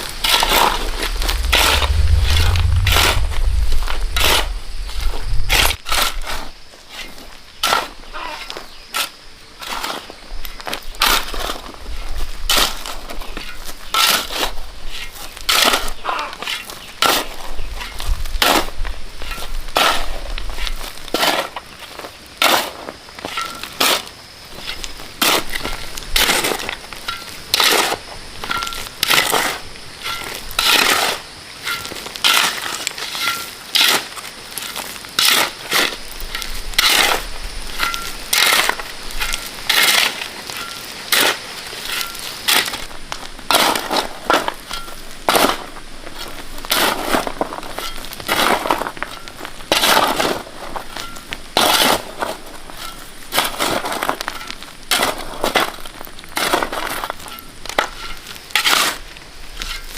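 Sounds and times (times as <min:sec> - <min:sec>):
shovel scraping concrete mix: 0:00.2 - 0:01.1, 0:12.5 - 0:21.6, 0:22.4 - 0:42.9, 0:43.5 - 0:59.9.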